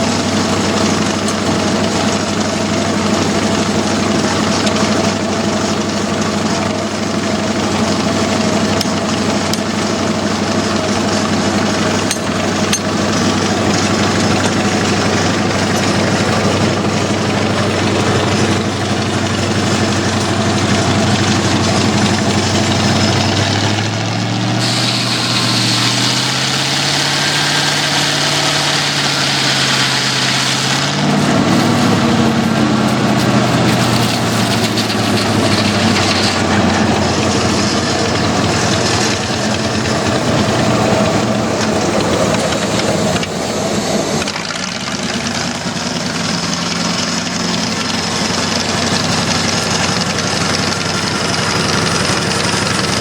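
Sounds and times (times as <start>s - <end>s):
sawmill engine running: 0.0s - 53.0s
high hiss: 24.4s - 36.6s.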